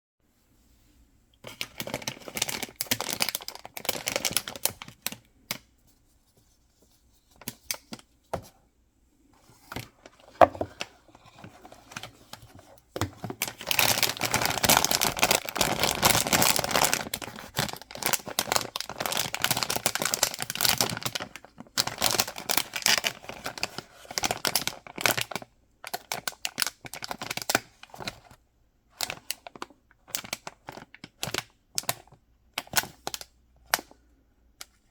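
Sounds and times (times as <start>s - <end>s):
wrappers crinkling and tearing: 1.5s - 5.2s, 13.3s - 28.1s.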